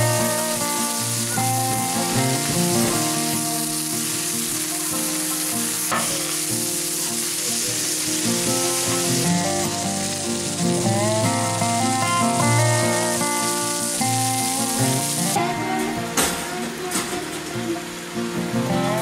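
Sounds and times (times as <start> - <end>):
background music: 0.0 - 19.0
food sizzling on a griddle: 0.0 - 19.0.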